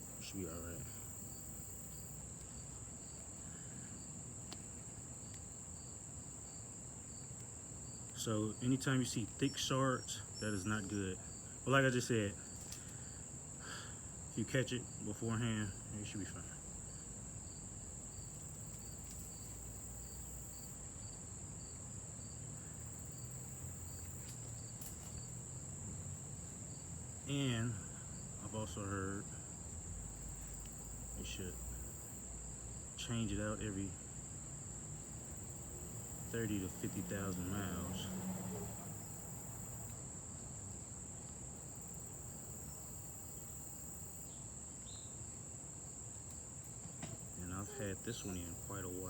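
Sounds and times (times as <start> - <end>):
faint low hum: 0.0 - 5.6, 8.0 - 40.0
crickets trilling: 0.0 - 49.0.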